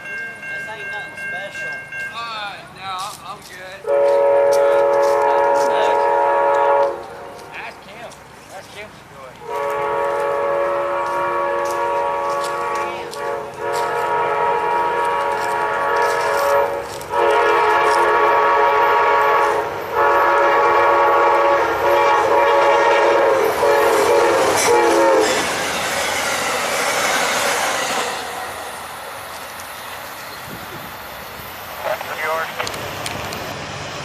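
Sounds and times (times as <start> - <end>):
train wheels rumbling clatter: 2.6 - 31.1
locomotive air horn blasts: 3.8 - 7.3, 9.4 - 25.7.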